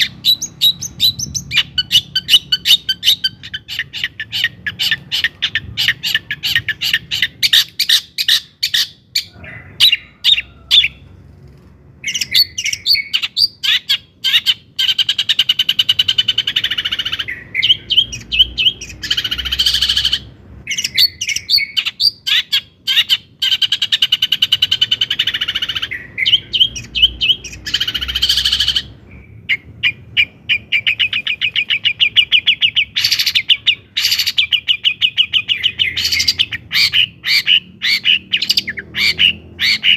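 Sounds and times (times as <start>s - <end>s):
shrike singing: 12.0s - 39.9s.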